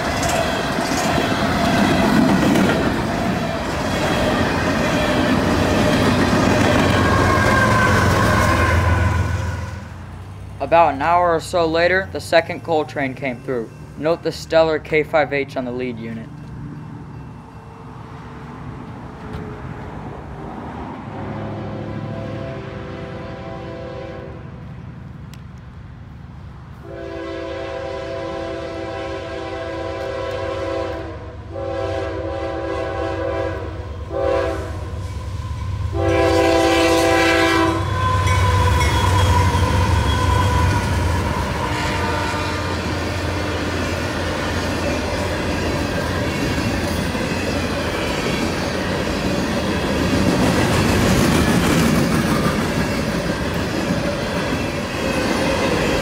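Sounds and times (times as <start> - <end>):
wheels clacking over rail joints: 0.0 - 8.7, 38.0 - 56.0
train rumbling past: 0.0 - 56.0
locomotive horn blowing: 5.7 - 9.9, 21.4 - 24.6, 26.8 - 35.0, 35.9 - 43.9.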